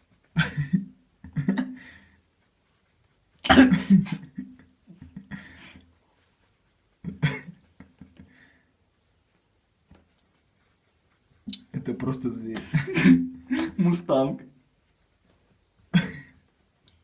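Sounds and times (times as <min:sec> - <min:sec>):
cough-like vocal bursts: 0:03.4 - 0:04.0.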